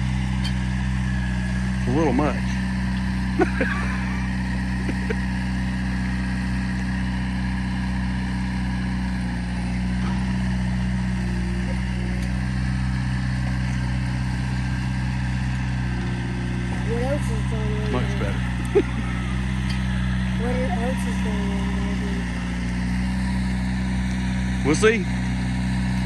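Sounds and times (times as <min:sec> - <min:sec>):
large engine running: 0:00.0 - 0:26.0.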